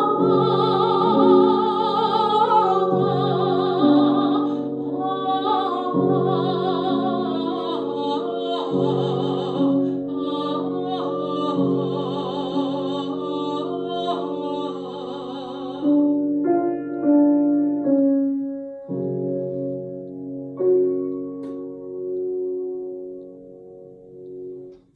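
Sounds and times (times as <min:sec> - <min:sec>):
soprano singing with vibrato: 0:00.0 - 0:16.3
piano chords: 0:00.0 - 0:24.9.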